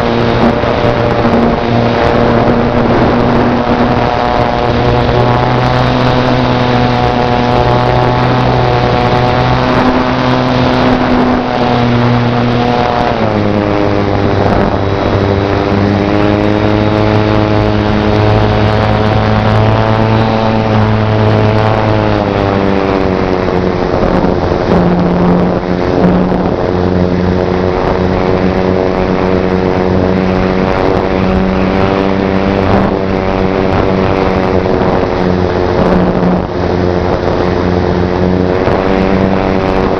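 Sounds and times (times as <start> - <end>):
model airplane motor buzzing: 0.0 - 39.9
wind noise: 0.0 - 39.9.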